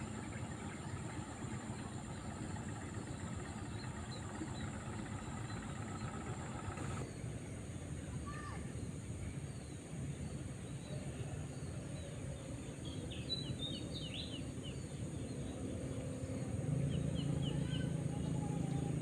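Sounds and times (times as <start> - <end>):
small birds chirping: 0.0 - 7.2, 12.9 - 19.0
low engine hum: 0.0 - 8.0, 9.2 - 19.0.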